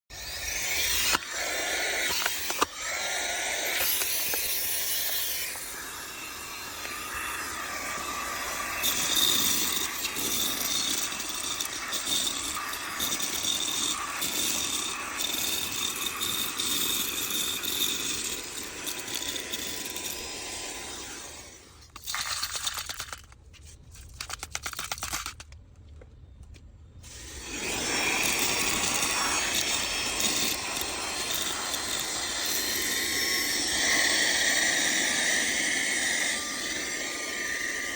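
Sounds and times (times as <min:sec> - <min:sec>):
handheld vacuum motor whine: 0:00.0 - 0:23.1, 0:27.0 - 0:37.9
rubbing and clicking: 0:21.9 - 0:26.0.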